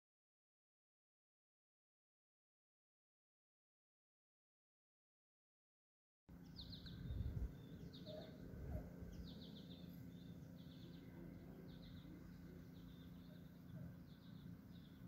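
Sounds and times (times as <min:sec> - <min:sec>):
low hum: 0:06.3 - 0:15.0
songbirds trilling: 0:06.3 - 0:15.0
low rumbles on microphone: 0:06.6 - 0:12.7.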